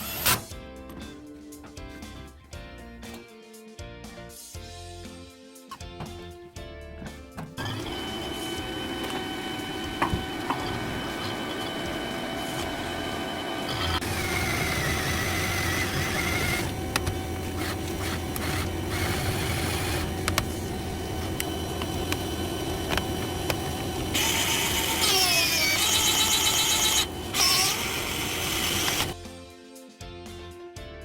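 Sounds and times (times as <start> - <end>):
machine humming: 7.6 - 29.2.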